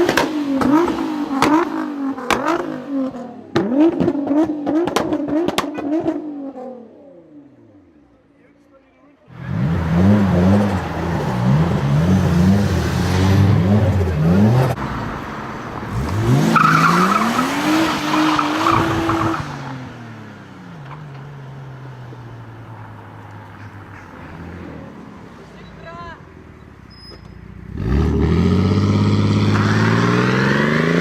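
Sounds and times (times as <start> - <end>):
car engine revving: 0.0 - 7.6, 9.3 - 21.7, 27.6 - 31.0
high squeal: 26.8 - 27.4.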